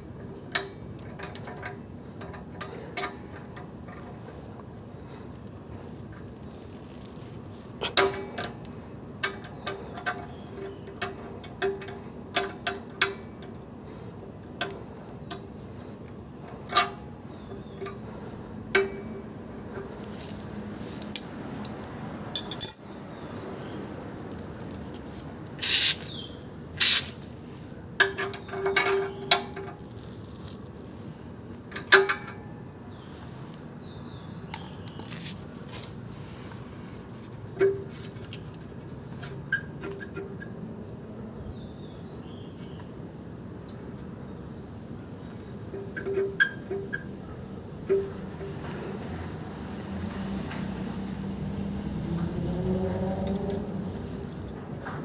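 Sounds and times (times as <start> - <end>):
metallic clinks and taps: 21.0 - 23.7.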